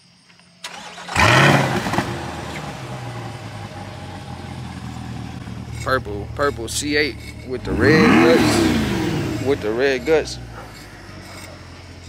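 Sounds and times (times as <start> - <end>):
car engine starting and idling: 0.6 - 12.0.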